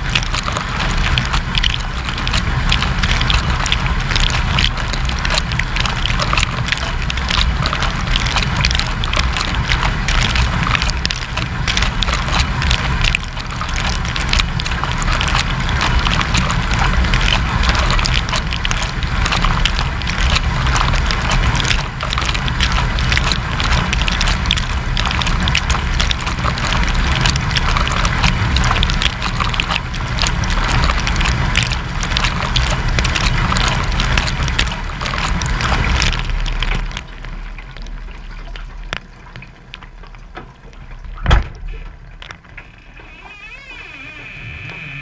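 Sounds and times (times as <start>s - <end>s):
dishwasher low rumble: 0.0s - 45.0s.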